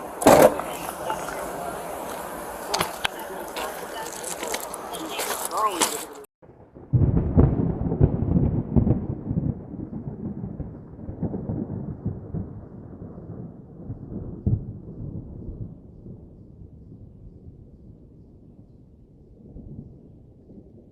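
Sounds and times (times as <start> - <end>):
deep thunder-like rumbling: 6.4 - 20.9.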